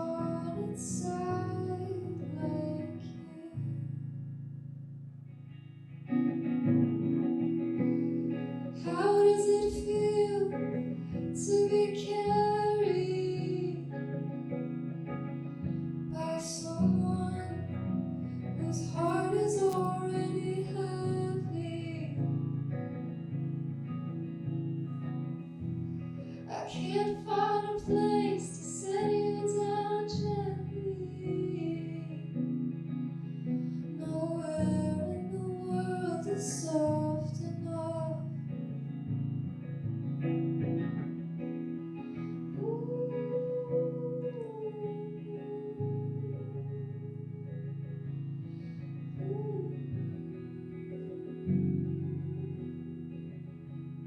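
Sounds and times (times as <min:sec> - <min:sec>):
person singing: 0:00.0 - 0:03.9, 0:08.8 - 0:14.4, 0:16.1 - 0:22.3, 0:26.4 - 0:32.4, 0:33.3 - 0:38.4, 0:42.4 - 0:48.3, 0:49.0 - 0:52.8
plucked guitar: 0:00.0 - 0:54.0.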